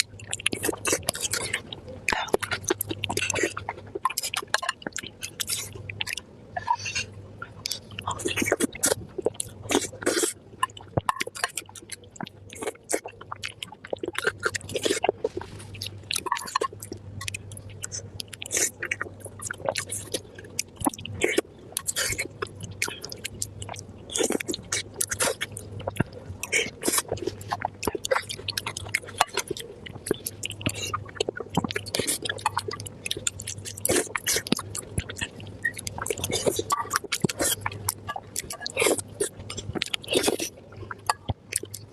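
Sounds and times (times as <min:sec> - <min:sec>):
wet chewing and mouth clicks: 0:00.0 - 0:41.9.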